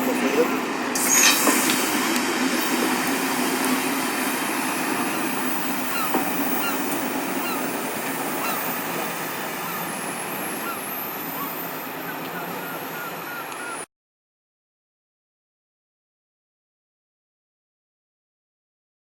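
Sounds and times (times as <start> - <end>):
train rumbling on rails: 0.0 - 13.9.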